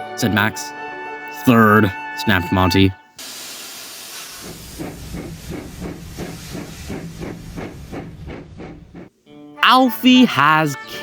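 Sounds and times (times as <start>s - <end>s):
steam engine chuffing: 3.4s - 9.1s.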